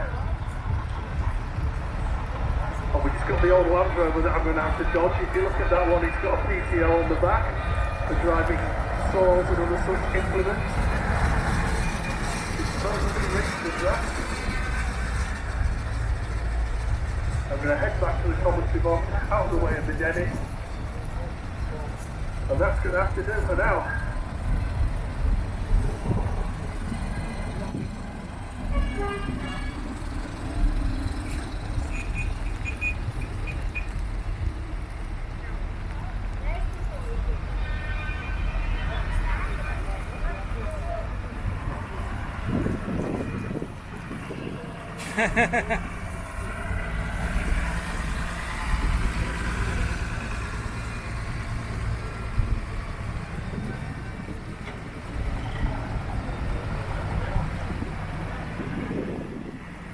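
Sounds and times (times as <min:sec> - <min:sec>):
vehicle engines running: 0:00.0 - 0:59.9
horn toot: 0:28.7 - 0:30.0.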